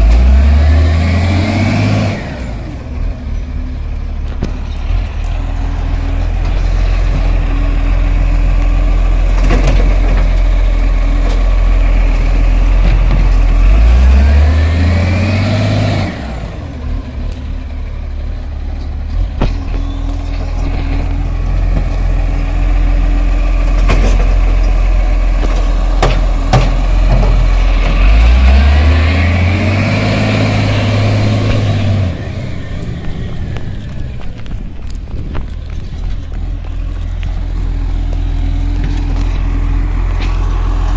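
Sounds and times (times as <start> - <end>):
truck diesel engine idling and revving: 0.0 - 40.9
bins and lift clunking: 8.9 - 11.9, 23.6 - 40.9.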